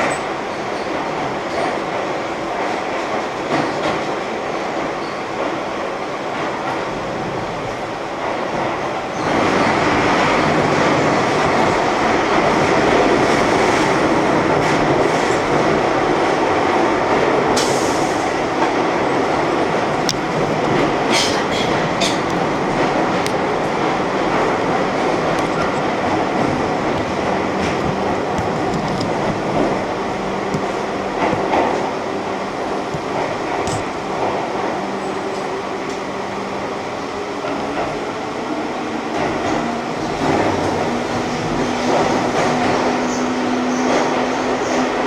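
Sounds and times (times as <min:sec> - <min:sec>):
wheels squeaking on rails: 0:04.8 - 0:05.5, 0:17.6 - 0:32.1, 0:39.1 - 0:45.0
train wheels and motors rumbling: 0:06.4 - 0:45.0.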